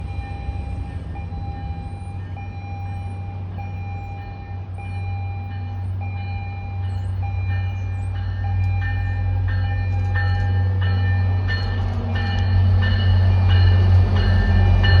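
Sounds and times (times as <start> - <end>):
diesel train rumbling: 0.0 - 15.0.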